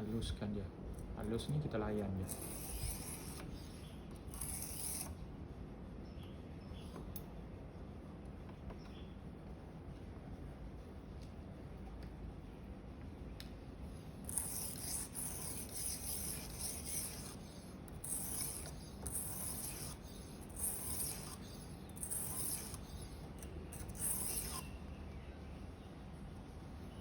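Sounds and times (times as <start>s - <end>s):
knife stroking sharpening stone: 2.3s - 5.1s, 14.2s - 24.8s.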